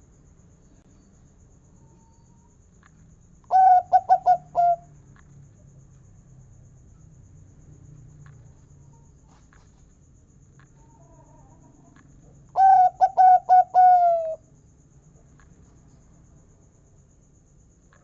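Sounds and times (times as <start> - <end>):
dove cooing: 3.5 - 4.9, 10.8 - 14.4.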